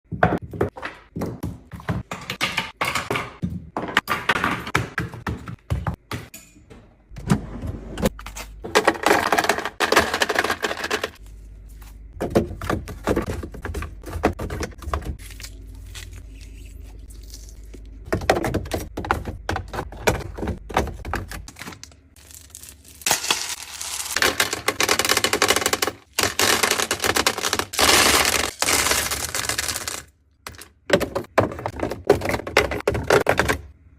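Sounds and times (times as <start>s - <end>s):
plastic containers clattering: 8.6s - 11.2s, 23.2s - 33.7s.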